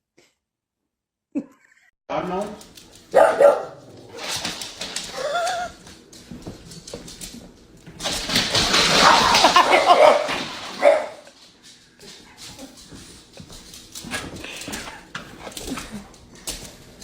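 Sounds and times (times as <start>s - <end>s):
dog barking and whining: 3.1s - 4.2s, 9.0s - 11.3s.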